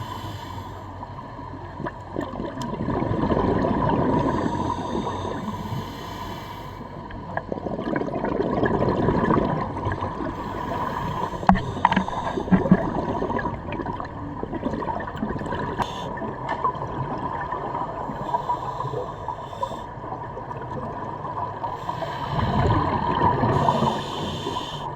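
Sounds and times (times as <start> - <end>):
diver breathing through regulator: 0.0 - 1.2, 4.1 - 7.3, 10.2 - 13.8, 15.6 - 16.2, 18.0 - 20.0, 21.6 - 24.9.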